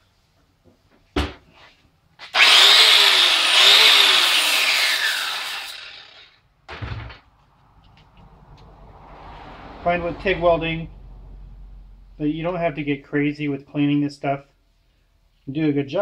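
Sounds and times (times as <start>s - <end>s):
thump: 1.1s - 1.4s, 6.7s - 7.3s
power grinder grinding metal: 2.2s - 6.4s.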